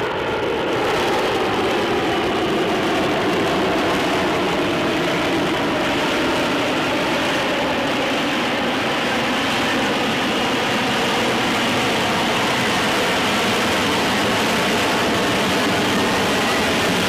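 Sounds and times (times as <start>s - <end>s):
jet engine roaring: 0.0s - 17.0s.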